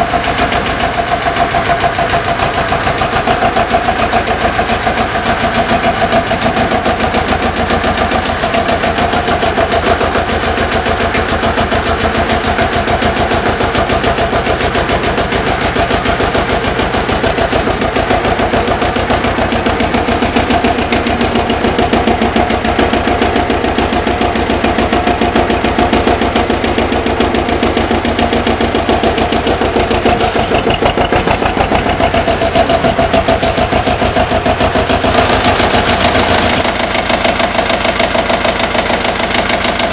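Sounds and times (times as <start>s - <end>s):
tractor diesel engine knocking: 0.0s - 39.9s.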